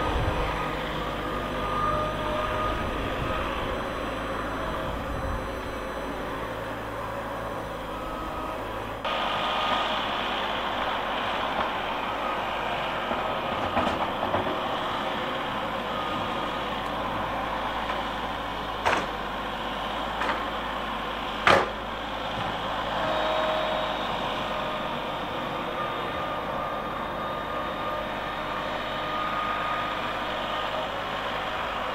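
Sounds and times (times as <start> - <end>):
heavy vehicle engine running: 0.0 - 31.9
sharp knocks: 18.8 - 19.2, 21.4 - 21.8.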